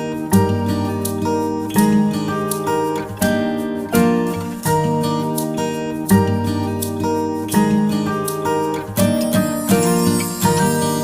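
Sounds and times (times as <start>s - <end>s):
strummed acoustic guitar chords: 0.0s - 11.0s.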